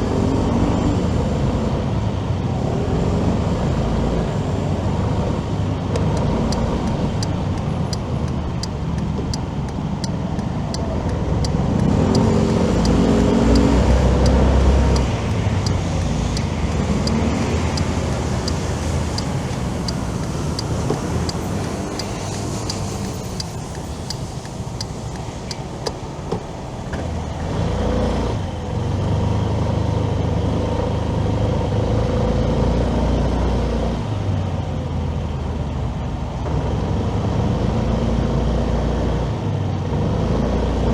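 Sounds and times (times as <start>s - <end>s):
passing vehicle engine: 0.0s - 34.5s
road noise: 0.0s - 40.9s
light regular ticking: 5.5s - 26.9s.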